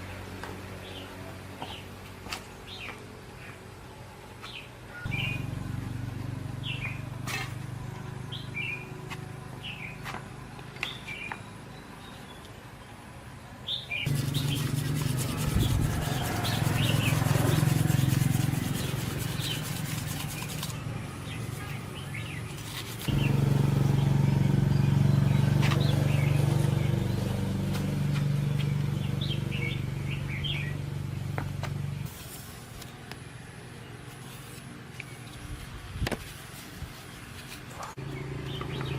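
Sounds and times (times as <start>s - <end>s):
small birds chirping: 4.4s - 5.5s, 6.5s - 7.4s, 9.6s - 12.9s, 13.6s - 31.2s, 37.6s - 38.9s
motor humming: 22.9s - 32.0s.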